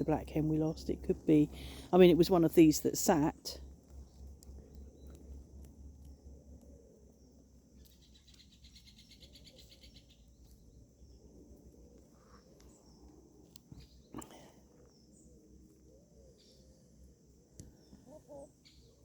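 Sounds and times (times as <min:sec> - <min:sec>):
hens murmuring: 0:17.6 - 0:18.8.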